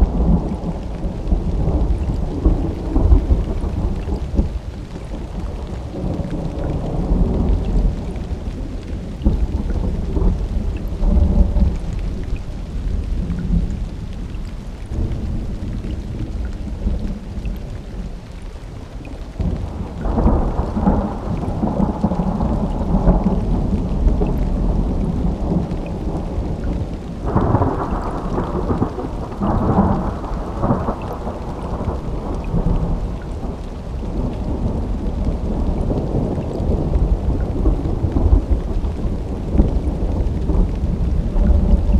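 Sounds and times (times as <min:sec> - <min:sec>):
steady rain: 0:00.0 - 0:41.9
thunder rumbling: 0:00.0 - 0:41.9.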